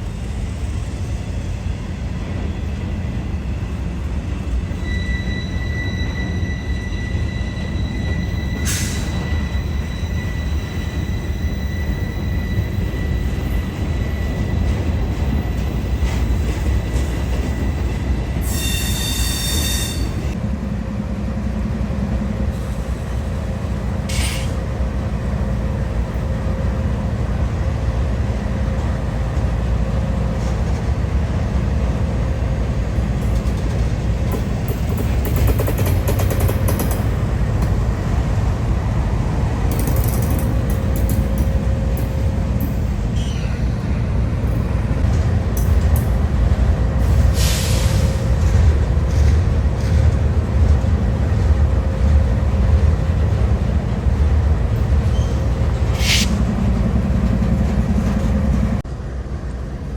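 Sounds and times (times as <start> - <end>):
train wheels squealing: 0.0 - 20.4, 22.4 - 26.7, 39.7 - 45.0, 47.0 - 49.9, 54.7 - 58.8
freight train rumbling on rails: 0.0 - 59.9.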